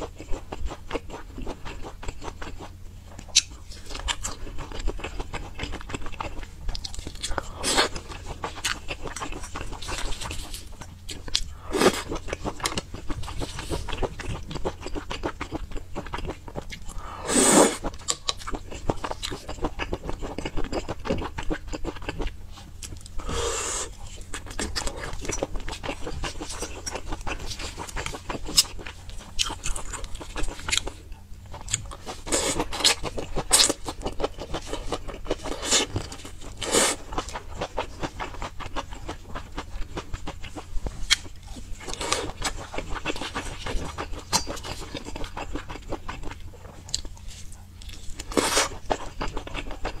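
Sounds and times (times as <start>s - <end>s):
chewing and biting food: 0.0s - 50.0s.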